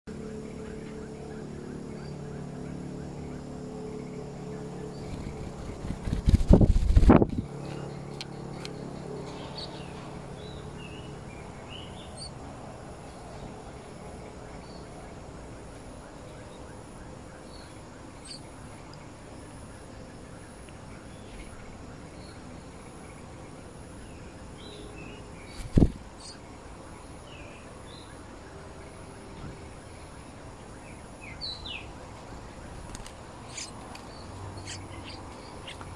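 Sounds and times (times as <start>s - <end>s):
outdoor background noise: 0.1s - 35.9s
faint bird chirps: 13.3s - 35.9s.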